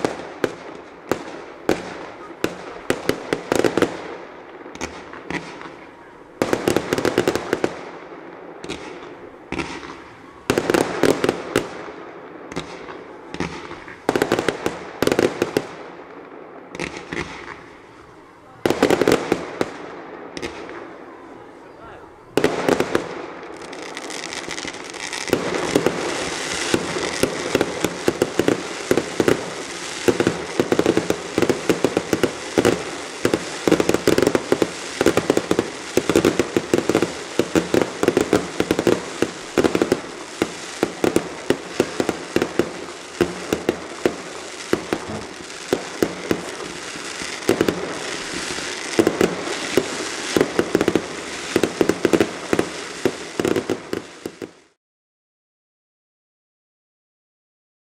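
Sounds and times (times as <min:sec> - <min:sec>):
fireworks crackling and popping: 0:00.0 - 0:54.8
sharp firework pops: 0:04.7 - 0:05.8, 0:08.6 - 0:11.7, 0:12.5 - 0:15.7, 0:16.7 - 0:17.8, 0:18.7 - 0:20.9.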